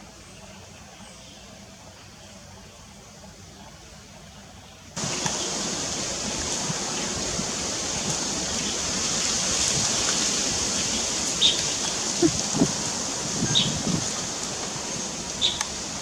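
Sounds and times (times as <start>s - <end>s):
strong wind rushing through trees: 5.0s - 16.0s.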